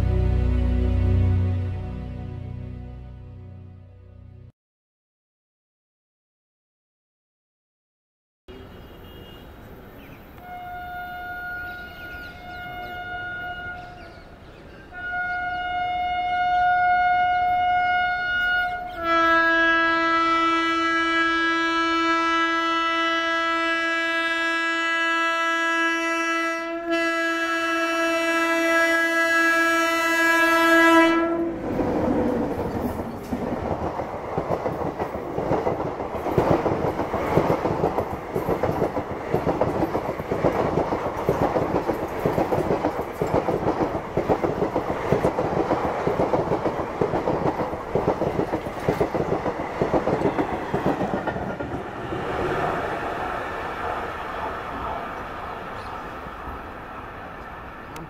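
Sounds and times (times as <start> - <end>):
passenger coaches rumbling past: 0.0 - 3.7, 8.6 - 58.0
locomotive horn blasts: 8.5 - 9.5, 10.4 - 14.1, 14.9 - 31.6
wheels clacking over rail joints: 31.7 - 52.5.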